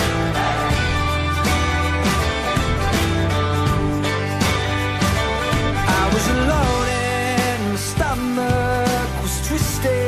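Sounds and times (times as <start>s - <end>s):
pop band playing: 0.0s - 10.0s
person singing: 5.7s - 10.0s.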